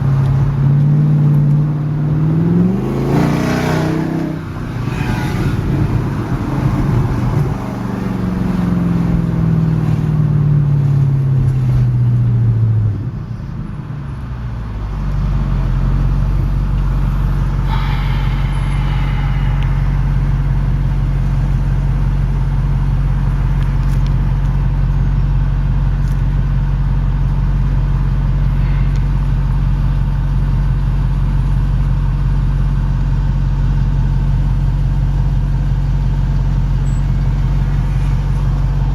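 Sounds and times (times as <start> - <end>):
car engine revs dropping to idle: 15.7 - 25.0.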